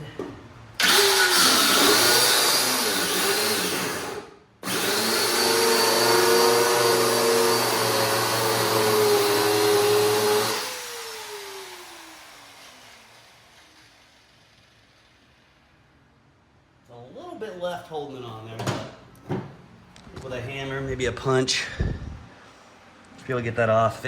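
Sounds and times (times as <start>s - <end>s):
cut-off wheel cutting metal: 0.8s - 15.3s.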